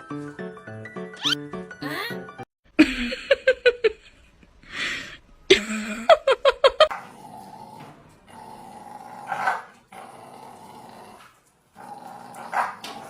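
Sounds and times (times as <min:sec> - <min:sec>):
dog growling: 0:07.0 - 0:13.0.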